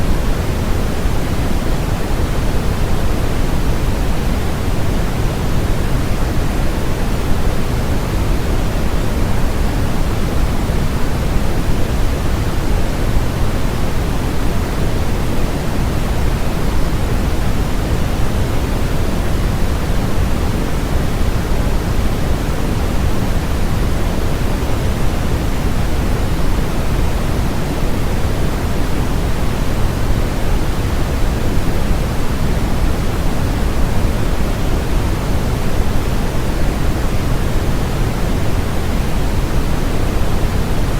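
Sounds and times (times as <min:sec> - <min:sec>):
generated noise hiss: 0:00.0 - 0:40.9.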